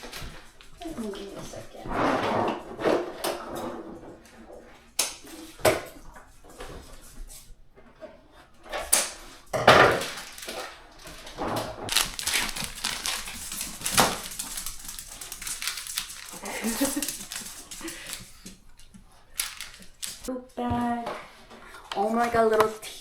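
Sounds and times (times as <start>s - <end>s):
packaging handled rustling and clicking: 10.0s - 20.3s.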